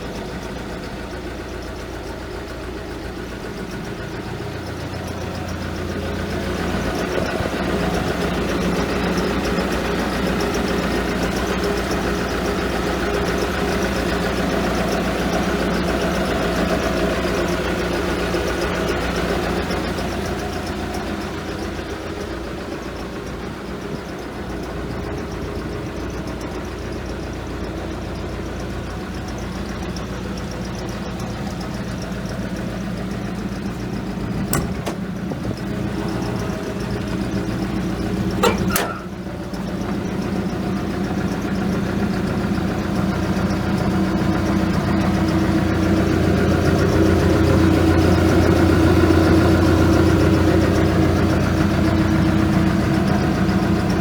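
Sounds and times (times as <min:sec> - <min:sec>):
excavator diesel engine running: 0:00.0 - 0:54.0
sharp knocks: 0:34.4 - 0:35.2.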